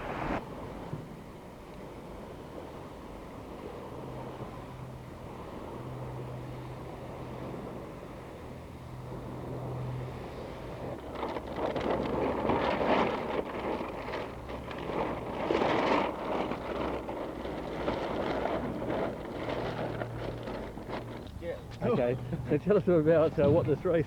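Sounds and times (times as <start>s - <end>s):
steady low hum: 0.0s - 0.4s
wind gusts on microphone: 0.0s - 1.3s.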